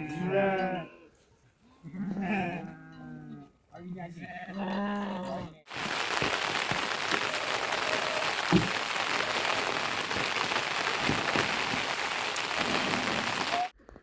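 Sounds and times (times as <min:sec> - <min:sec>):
heavy rain falling: 0:05.7 - 0:13.7.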